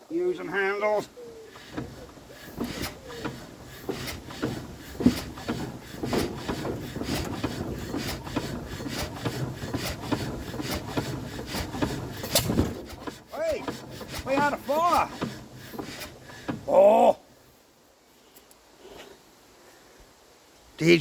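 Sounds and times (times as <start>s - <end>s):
engine clicks and knocks: 1.5s - 16.7s.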